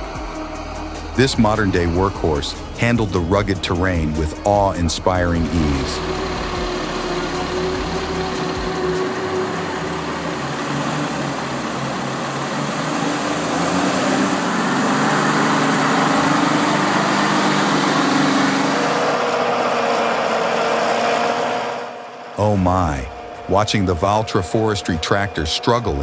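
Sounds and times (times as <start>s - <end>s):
diesel engine running: 0.0s - 26.0s
higher engine tone: 0.0s - 26.0s.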